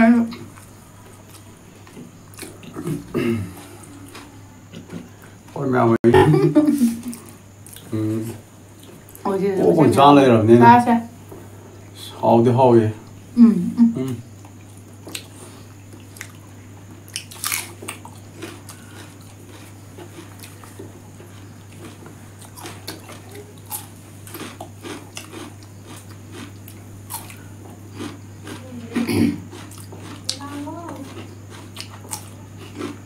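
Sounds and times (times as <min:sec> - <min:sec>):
steady low hum: 0:00.0 - 0:33.0
chewing: 0:00.4 - 0:05.2, 0:14.4 - 0:33.0
crisp crunching bites: 0:17.2 - 0:19.6.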